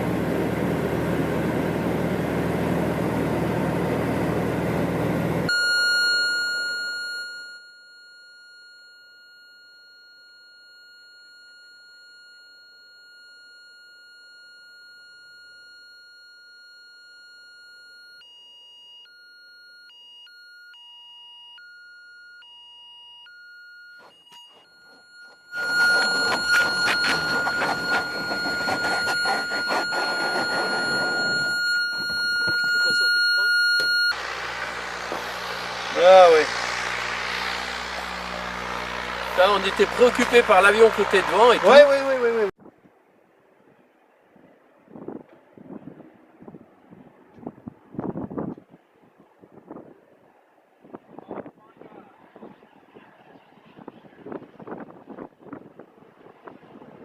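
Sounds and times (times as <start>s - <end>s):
high-pitched electronic alarm tone: 5.5s - 42.5s
loud rushing noise: 34.2s - 41.9s.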